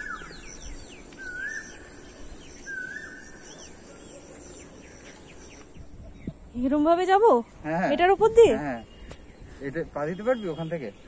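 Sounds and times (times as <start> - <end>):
whistled bird call: 0.0 - 1.9.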